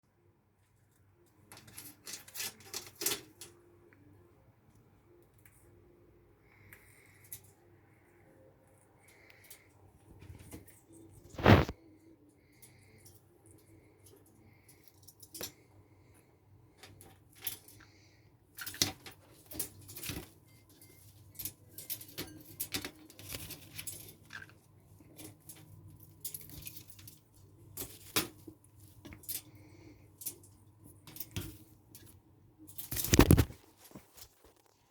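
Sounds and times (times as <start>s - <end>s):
rustling: 9.0s - 13.1s, 16.8s - 34.9s.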